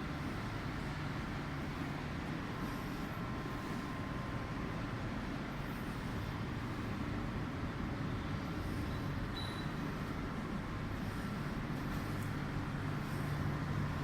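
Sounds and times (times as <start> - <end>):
car wash machinery rumbling: 0.0 - 14.0.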